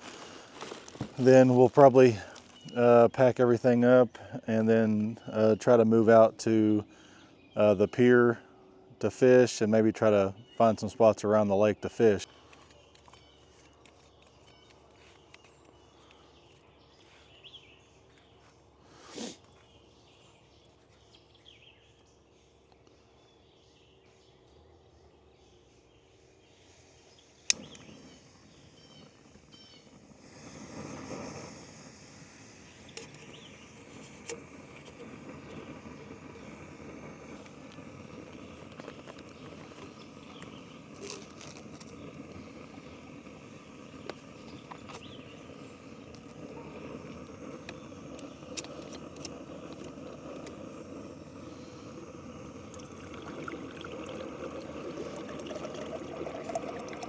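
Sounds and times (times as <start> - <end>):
gas stove burner hissing: 27.4 - 55.3.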